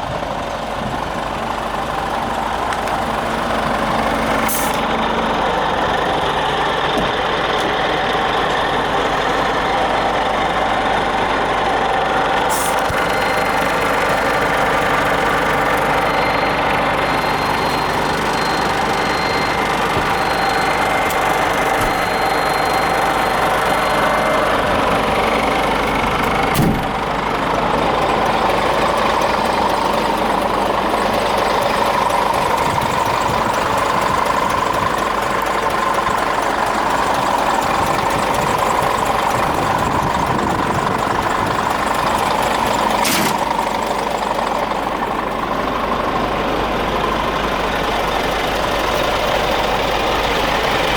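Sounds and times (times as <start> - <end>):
diesel truck engine idling: 0.0 - 50.9
sharp click: 43.0 - 43.6.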